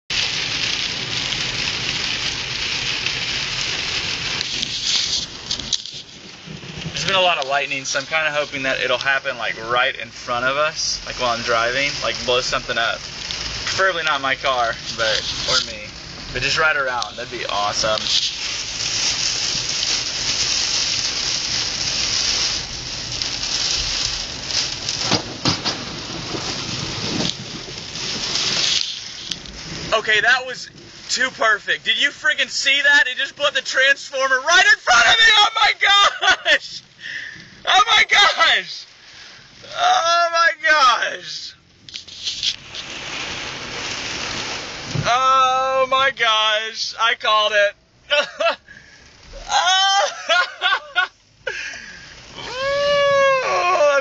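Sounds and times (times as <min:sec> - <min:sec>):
rain hitting a car: 0:00.0 - 0:54.0
sharp cracks: 0:00.2 - 0:09.2, 0:11.2 - 0:31.0, 0:39.6 - 0:45.1
low driving rumble: 0:03.1 - 0:32.3.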